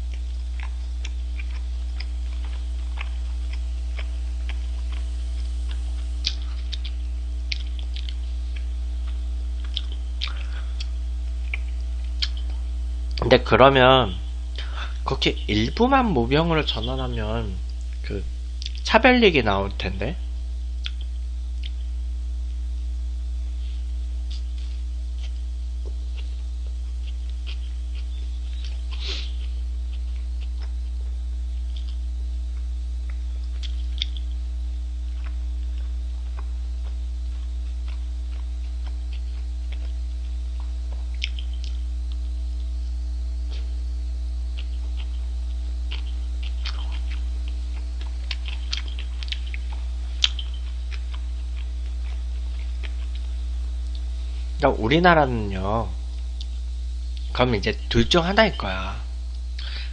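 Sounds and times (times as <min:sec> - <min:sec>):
person chewing: 0:00.0 - 0:13.2, 0:17.6 - 0:18.9, 0:20.8 - 0:22.0, 0:23.6 - 0:42.8, 0:43.4 - 0:43.8, 0:44.4 - 0:54.6, 0:59.3 - 0:59.9
steady low hum: 0:00.0 - 0:59.9.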